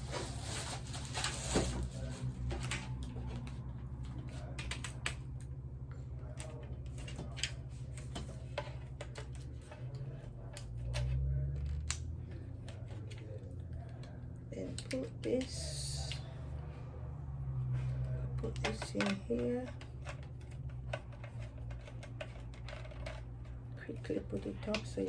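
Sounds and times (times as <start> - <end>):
steady low hum: 0.0 - 25.0
stand parts clicking and knocking: 6.3 - 15.6, 18.4 - 25.0.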